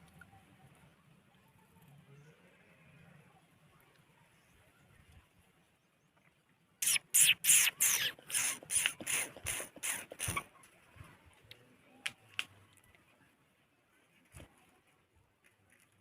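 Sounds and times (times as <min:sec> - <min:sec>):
parrot screeching calls: 0:06.8 - 0:10.4.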